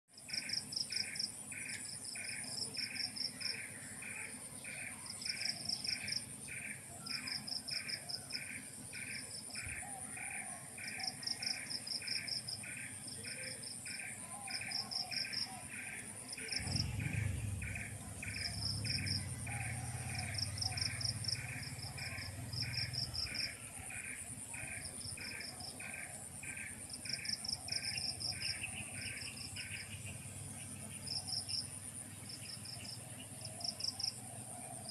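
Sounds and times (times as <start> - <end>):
insects trilling: 0.2 - 34.9
regular insect chirp: 0.2 - 34.9
low rumble: 16.4 - 24.5.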